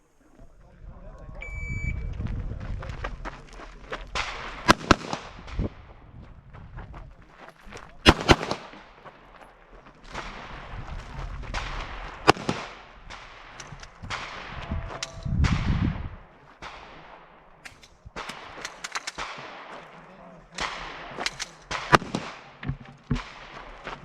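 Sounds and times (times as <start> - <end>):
gunshots with echo: 4.0 - 6.0, 8.0 - 9.0, 10.1 - 23.9.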